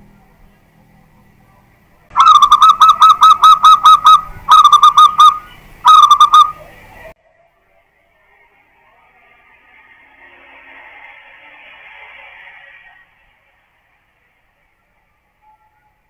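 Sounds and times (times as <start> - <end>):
dove cooing: 2.2 - 6.8.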